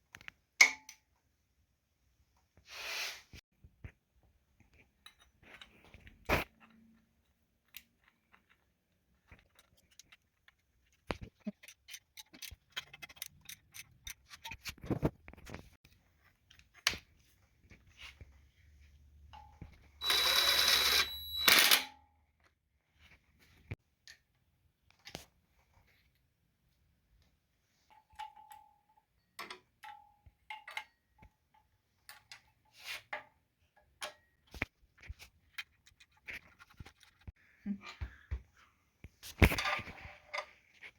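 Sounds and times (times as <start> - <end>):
tools and engine parts clicking: 7.6 - 15.0, 27.9 - 34.7.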